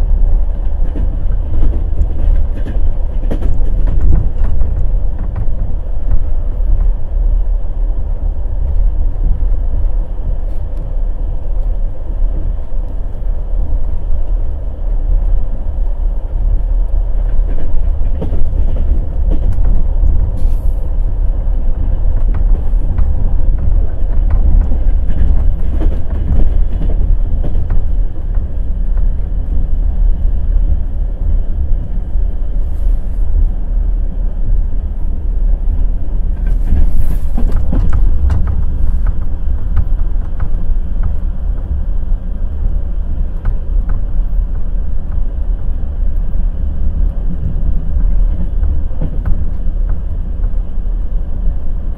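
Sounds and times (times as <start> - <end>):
train wheels clattering over rails: 0.0 - 11.0, 11.6 - 51.9.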